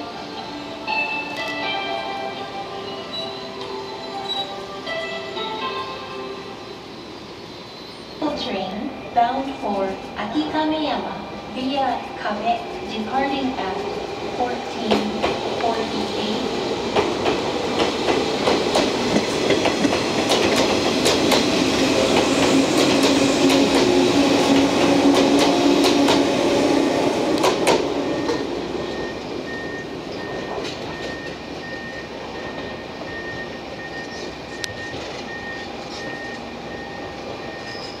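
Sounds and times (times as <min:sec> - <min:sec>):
train wheels clicking over rail joints: 0:16.8 - 0:26.4, 0:27.3 - 0:28.4, 0:29.0 - 0:36.4.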